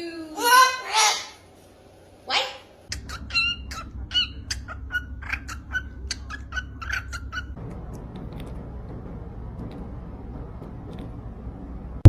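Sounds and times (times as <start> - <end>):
parrot clicking chirps: 2.9 - 7.6.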